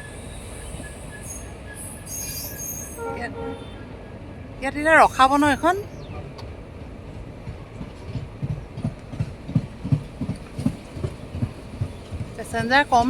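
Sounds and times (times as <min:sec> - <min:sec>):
low train rumble: 0:00.0 - 0:13.0
train wheels clickety-clack: 0:06.1 - 0:13.0.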